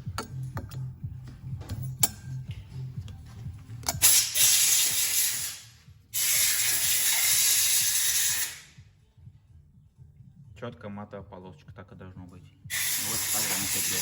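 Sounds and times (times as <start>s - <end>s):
hissing spray nozzle blasts: 4.0s - 8.7s, 12.7s - 14.0s.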